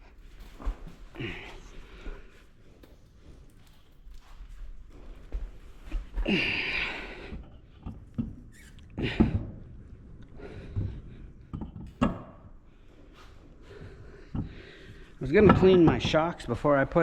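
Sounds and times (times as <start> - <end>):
short squeaks: 8.4 - 9.0
knocks and clunks: 10.6 - 12.6, 14.2 - 16.4.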